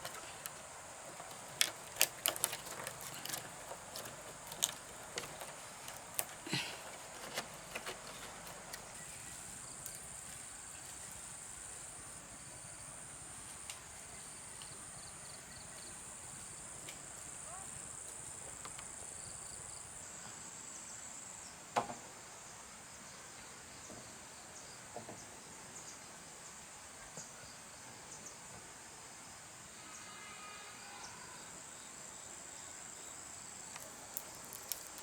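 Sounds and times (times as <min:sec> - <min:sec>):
light clicks and knocks: 0:00.0 - 0:09.0.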